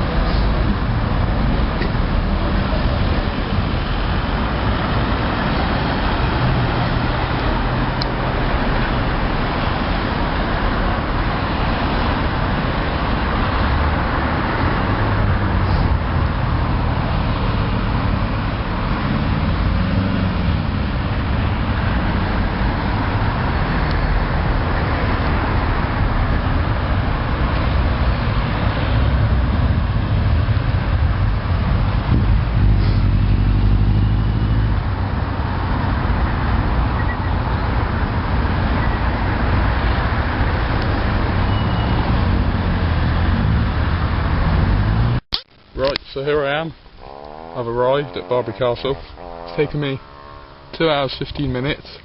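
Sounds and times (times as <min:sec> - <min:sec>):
vehicle passing: 0:00.0 - 0:45.2, 0:47.0 - 0:51.8
car engines: 0:00.0 - 0:52.0
tyre noise: 0:41.1 - 0:52.0.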